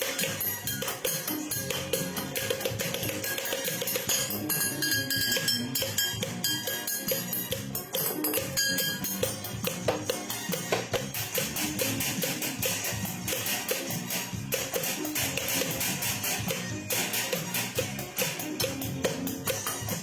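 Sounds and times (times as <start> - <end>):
busy percussion beat: 0.0 - 20.0.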